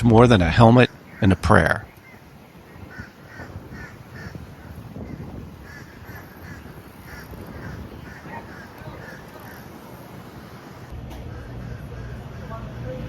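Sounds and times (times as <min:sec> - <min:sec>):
low steady background rumble: 0:00.0 - 0:13.0
bird giving harsh crow-like calls: 0:00.9 - 0:09.8, 0:11.3 - 0:12.5.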